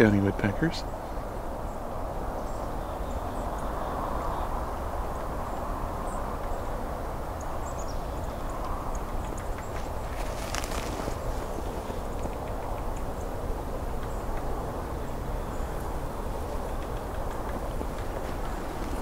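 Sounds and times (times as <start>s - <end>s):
high bird calls: 7.4s - 13.4s
creek rushing: 9.6s - 13.1s.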